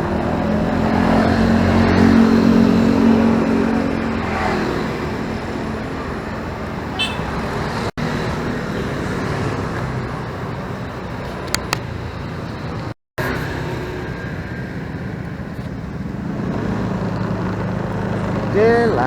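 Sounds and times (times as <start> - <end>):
motorcycle engine hum: 0.0 - 19.0
road and traffic noise: 0.0 - 19.0
short high beep: 7.0 - 7.3.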